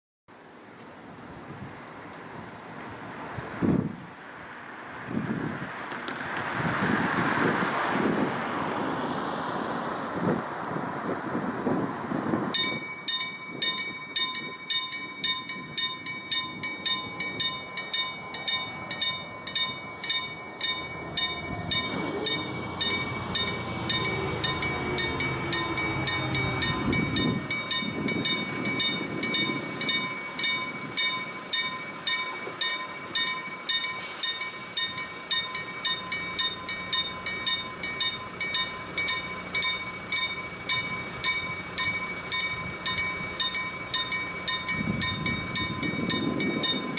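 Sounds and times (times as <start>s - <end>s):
freight train passing: 0.3s - 46.9s
level crossing warning bell: 12.6s - 46.9s.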